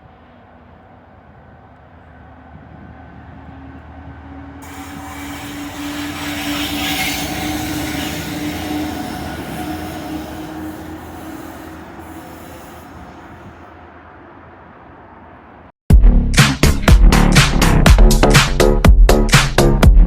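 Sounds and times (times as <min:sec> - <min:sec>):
diesel freight train passing: 0:00.0 - 0:15.7.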